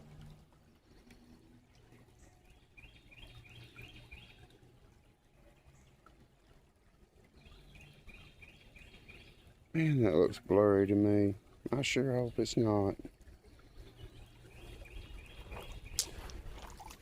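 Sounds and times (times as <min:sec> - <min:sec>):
faint low background noise: 0:00.0 - 0:17.0
bird chirping: 0:02.2 - 0:04.5, 0:07.4 - 0:09.6, 0:13.7 - 0:16.3.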